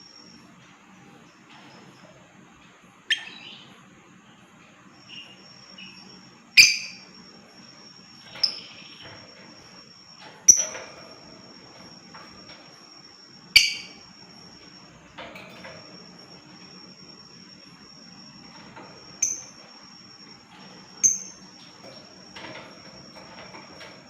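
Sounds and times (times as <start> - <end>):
lovebird shrill calls: 6.6 - 7.0.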